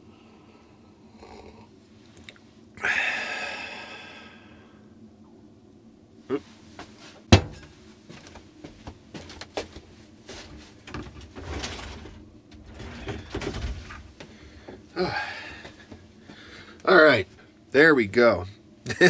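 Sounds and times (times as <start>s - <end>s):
rustling: 6.8s - 15.0s.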